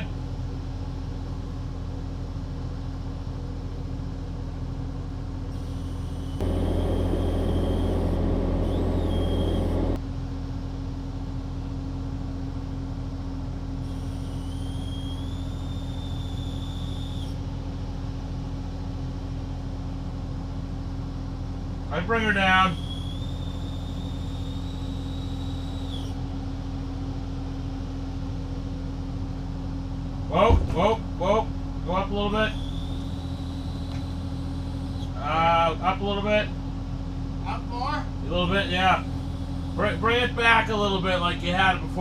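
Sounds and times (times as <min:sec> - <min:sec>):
excavator diesel engine running: 0:00.0 - 0:30.4, 0:31.0 - 0:42.0
thin high whine: 0:05.5 - 0:10.0, 0:13.8 - 0:17.4, 0:22.0 - 0:26.2, 0:32.0 - 0:35.5, 0:38.3 - 0:40.5.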